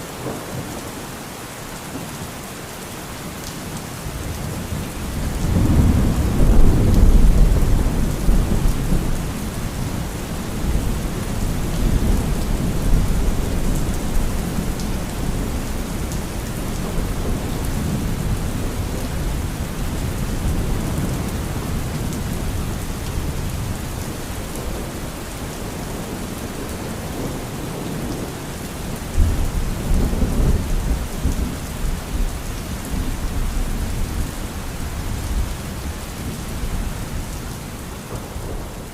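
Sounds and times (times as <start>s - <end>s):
heavy rain: 0.0s - 38.9s
rolling thunder: 5.0s - 34.3s.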